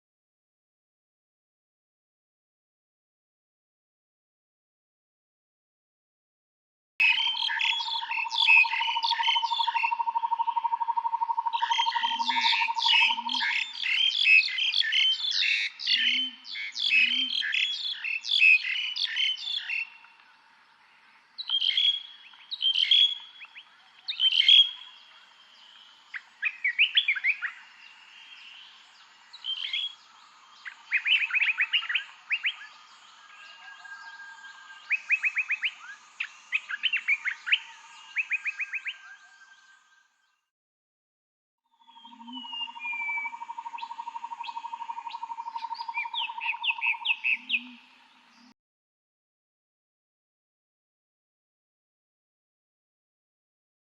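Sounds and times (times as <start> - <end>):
songbirds chirping and trilling: 7.0 - 40.5, 41.7 - 48.6
short low frog calls: 41.8 - 46.7.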